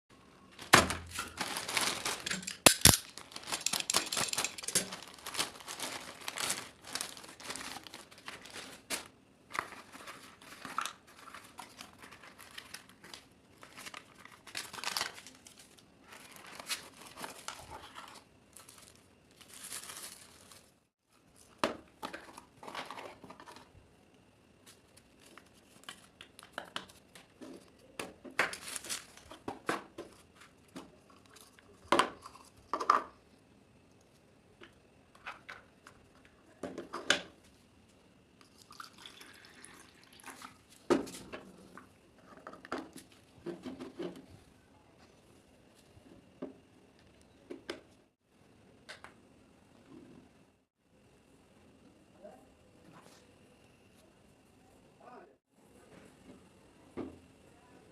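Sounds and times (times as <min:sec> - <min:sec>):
material crinkling and rustling: 0:00.5 - 0:23.7.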